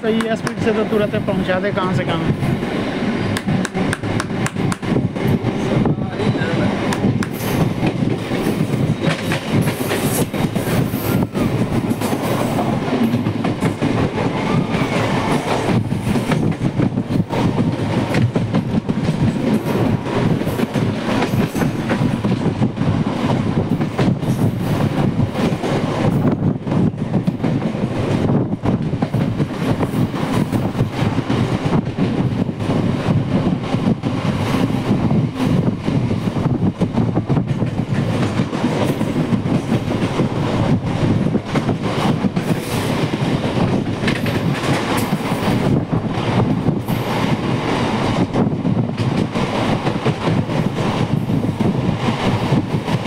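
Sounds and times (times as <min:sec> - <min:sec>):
train wheels rumbling and rattling: 0:00.0 - 0:53.0
knocks at rail joints: 0:03.3 - 0:05.4.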